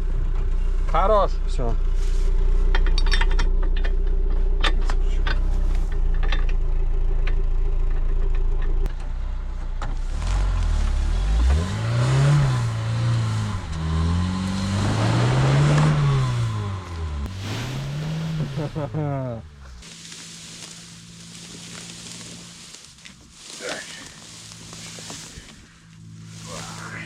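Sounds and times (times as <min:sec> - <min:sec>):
car engine idling and revving: 0:00.0 - 0:27.0.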